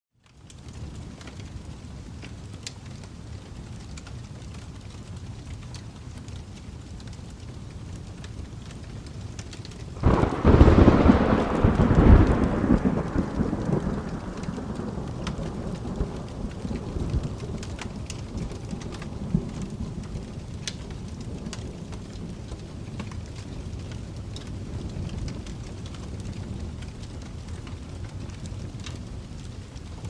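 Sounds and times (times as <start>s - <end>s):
steady rain: 0.1s - 30.0s
wood fire crackling: 0.2s - 30.0s
thunderclap rumbling: 10.0s - 29.9s.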